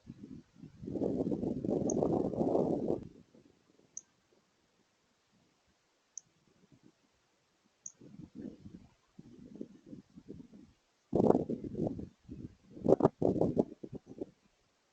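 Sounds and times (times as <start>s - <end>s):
wind gusts on microphone: 0.0s - 3.3s, 8.0s - 14.3s.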